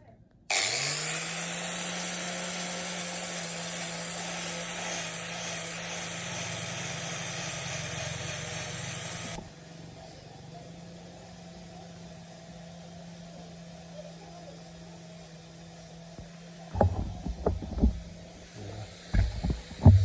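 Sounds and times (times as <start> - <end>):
machine motor running: 16.2 - 20.0.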